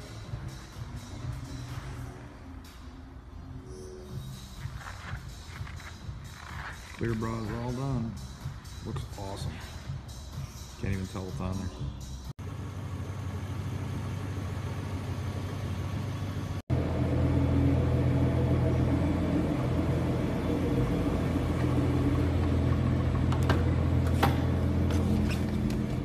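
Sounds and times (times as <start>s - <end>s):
car engine idling: 12.4s - 26.0s.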